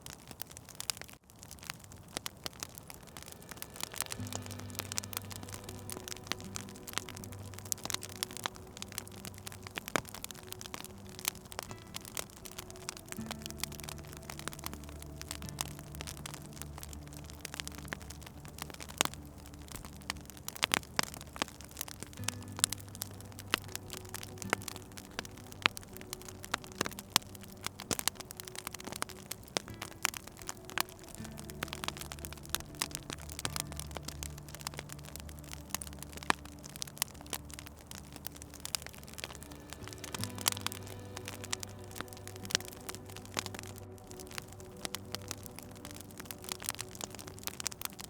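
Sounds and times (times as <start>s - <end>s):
wood fire crackling and popping: 0.0s - 48.0s
soft low musical drone: 1.4s - 48.0s
low held tones: 1.5s - 48.0s.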